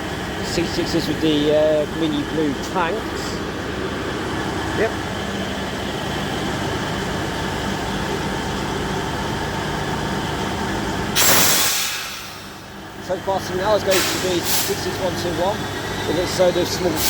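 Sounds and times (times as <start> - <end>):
diesel locomotive running under power: 0.0 - 17.0
sudden loud hiss: 11.2 - 12.8, 13.8 - 15.2.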